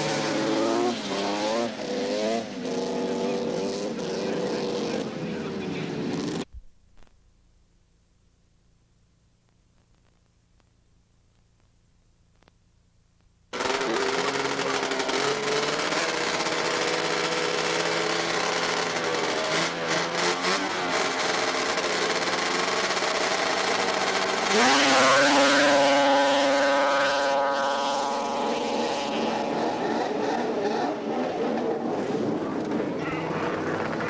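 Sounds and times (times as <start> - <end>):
snowmobile engines revving: 0.0 - 6.5, 13.5 - 34.0.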